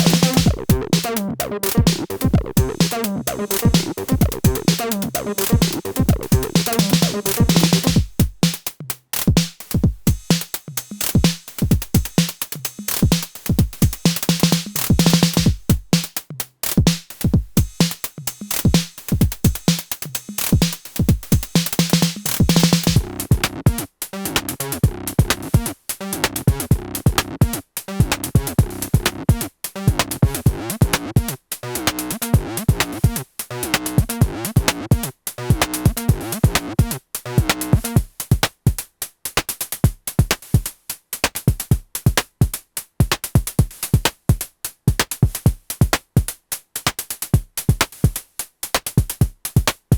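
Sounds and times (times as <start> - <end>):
synth bass line: 0.0 - 8.0
drum machine beat: 0.0 - 49.9.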